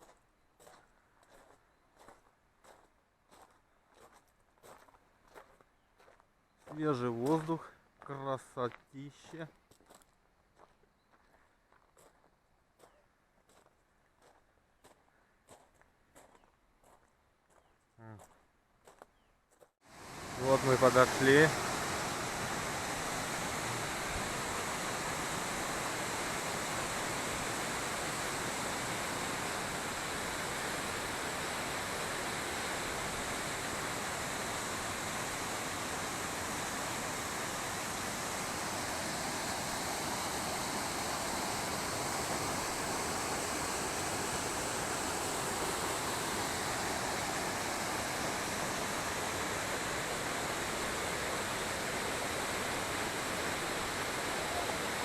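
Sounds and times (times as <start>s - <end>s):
waterfall rushing and splashing: 19.9s - 55.0s.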